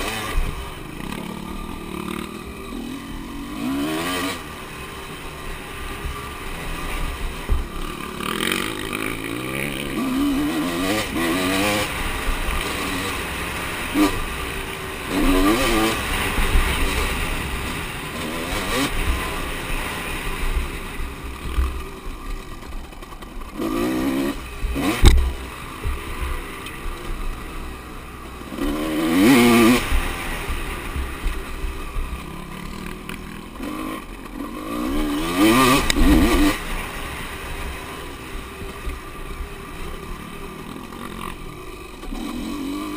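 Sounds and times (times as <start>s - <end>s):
motocross bikes revving and passing: 0.0s - 42.9s.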